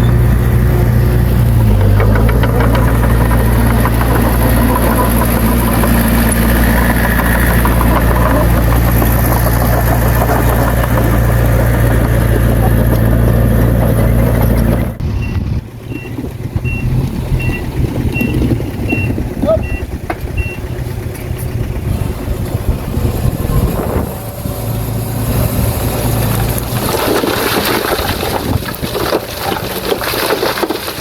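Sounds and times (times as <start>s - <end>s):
diesel engine running: 0.0s - 31.0s
reversing alarm beeping: 15.2s - 20.6s.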